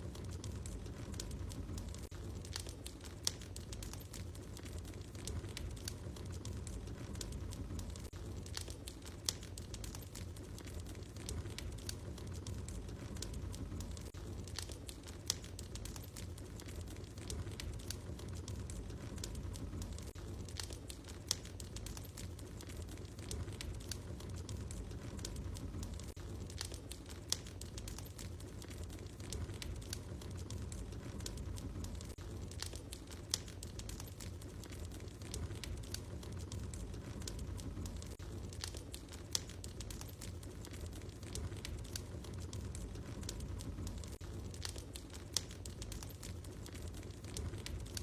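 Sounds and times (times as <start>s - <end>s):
fire crackling and popping: 0.0s - 48.0s
low rumble of flames: 0.0s - 48.0s.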